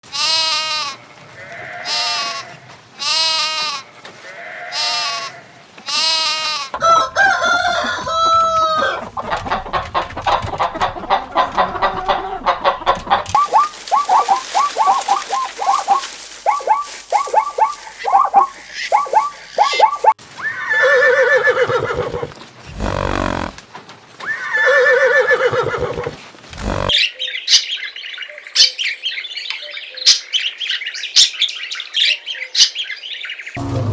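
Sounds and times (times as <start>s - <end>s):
fast repeated animal calls: 13.4s - 20.1s, 21.2s - 23.6s, 25.4s - 27.0s
long animal calls: 13.4s - 23.6s, 24.4s - 27.0s.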